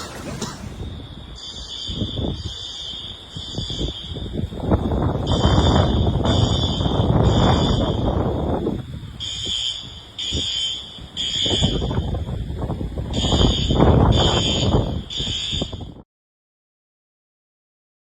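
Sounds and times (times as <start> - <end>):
rough rushing noise: 0.0 - 1.3
fire alarm beeping: 0.0 - 12.4, 13.1 - 16.0.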